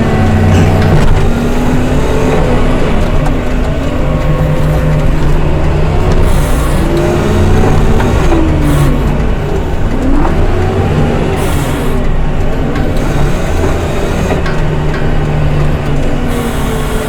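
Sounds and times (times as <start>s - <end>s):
diesel engine running hard: 0.0s - 17.0s
hiss surges: 6.1s - 9.8s, 11.4s - 12.2s.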